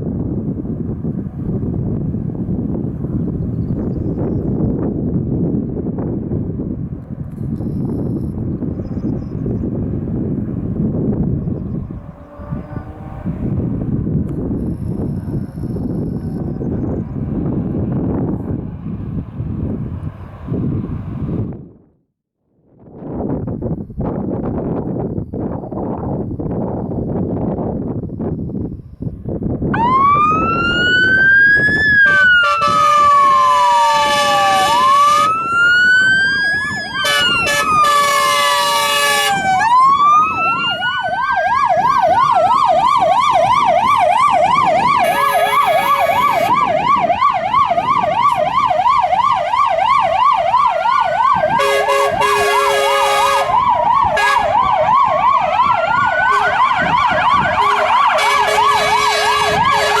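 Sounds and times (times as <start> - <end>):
fire truck sirens wailing: 9.7 - 19.9, 29.7 - 60.0
fast yelp siren: 11.8 - 13.4, 29.8 - 60.0
air horn blasts: 12.0 - 13.5, 32.0 - 35.4, 37.0 - 39.6, 45.0 - 46.6, 51.5 - 54.6, 56.2 - 56.7, 57.6 - 60.0.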